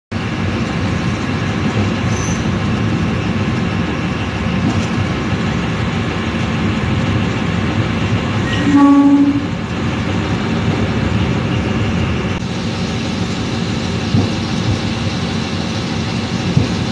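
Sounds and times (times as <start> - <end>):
train engine and wheels running: 0.1 - 16.9
train horn held tone: 8.4 - 9.6.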